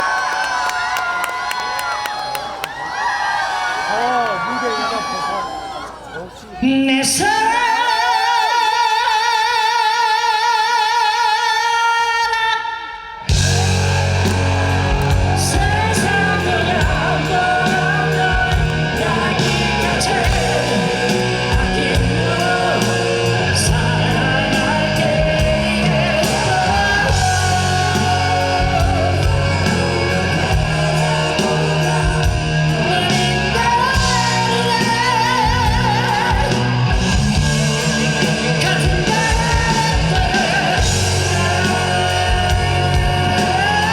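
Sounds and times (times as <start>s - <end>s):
man singing with vibrato: 6.5s - 43.9s
rock band playing: 13.2s - 43.9s.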